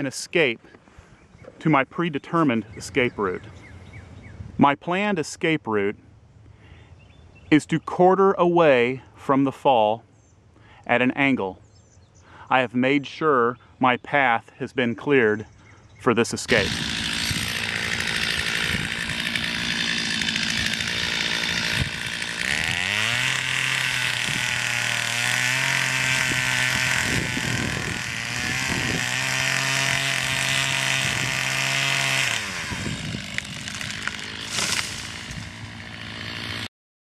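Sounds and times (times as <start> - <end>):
chainsaw revving: 16.4 - 36.7.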